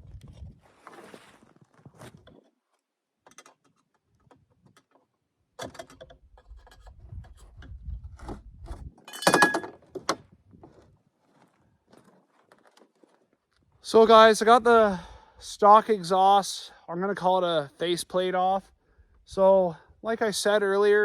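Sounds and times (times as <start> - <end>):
ringing metal clank: 9.1 - 9.8.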